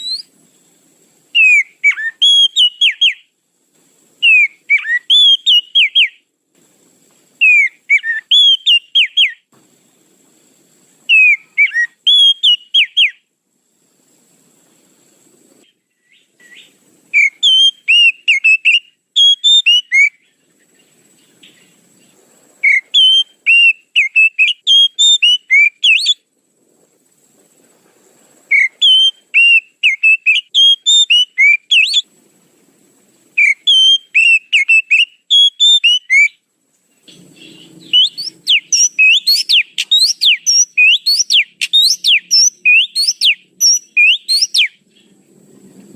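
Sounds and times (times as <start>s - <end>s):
magpie-robin whistled song: 0.0s - 0.3s, 1.4s - 3.3s, 4.2s - 6.2s, 7.4s - 9.4s, 11.1s - 13.2s, 16.0s - 21.8s, 22.6s - 26.2s, 28.5s - 32.1s, 33.4s - 36.4s, 37.1s - 45.1s.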